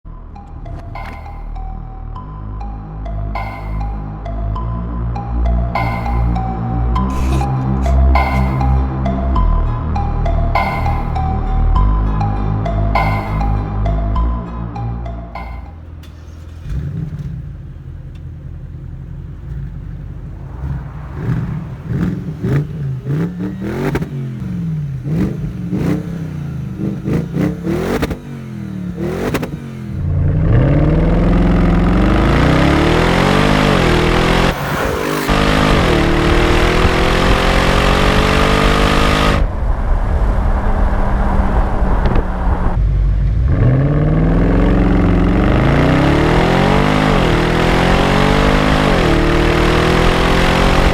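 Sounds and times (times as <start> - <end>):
car engine revving: 0.3 - 50.9
car accelerating hard: 15.4 - 50.9.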